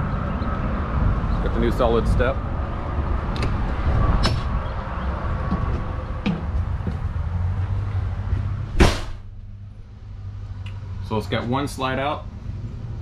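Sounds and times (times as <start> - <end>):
low outdoor rumble: 0.0 - 13.0
loud thud: 8.7 - 9.4.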